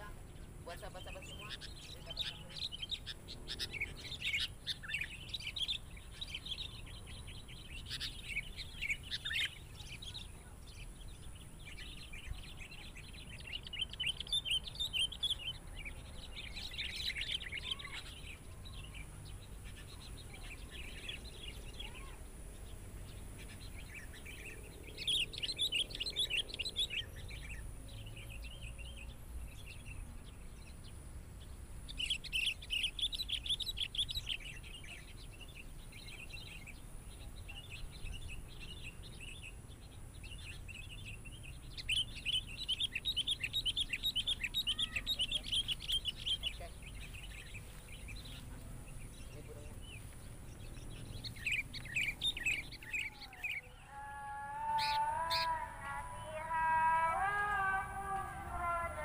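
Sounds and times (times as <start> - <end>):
bird chirping: 0.0 - 59.0.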